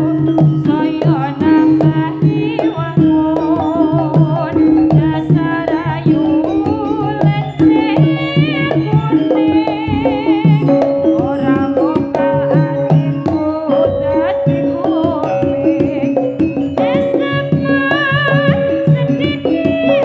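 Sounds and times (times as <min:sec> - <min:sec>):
gamelan tones: 0:00.0 - 0:20.0
hand drums beating: 0:00.0 - 0:20.0
wavering melody line: 0:00.0 - 0:20.0.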